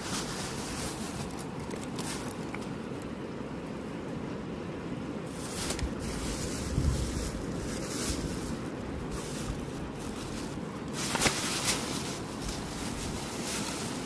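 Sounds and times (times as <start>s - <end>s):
wind buffeting microphone: 5.3s - 14.0s.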